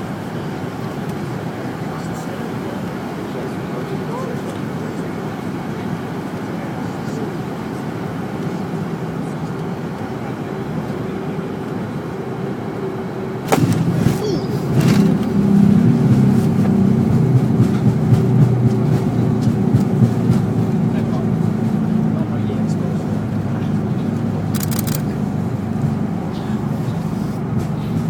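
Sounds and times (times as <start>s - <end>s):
jet cabin noise: 0.0s - 28.0s
wheels touching runway thump: 13.5s - 16.8s.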